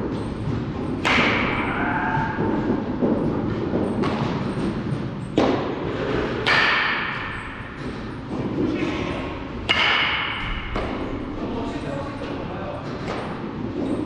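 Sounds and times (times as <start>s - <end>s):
baseball bat hits with ringing: 0.9s - 2.6s, 6.4s - 8.4s, 9.6s - 11.4s.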